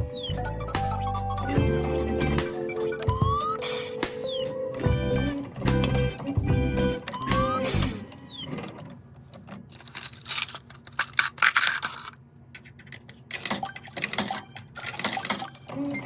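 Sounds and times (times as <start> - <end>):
claw machine mechanism clicking: 7.0 - 16.0.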